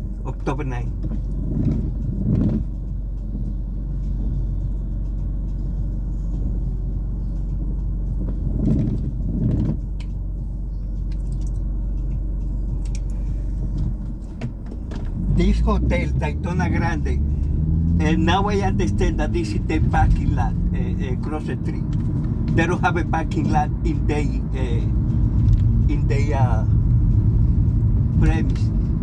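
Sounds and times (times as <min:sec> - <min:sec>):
car engine and tyre noise: 0:00.0 - 0:29.0.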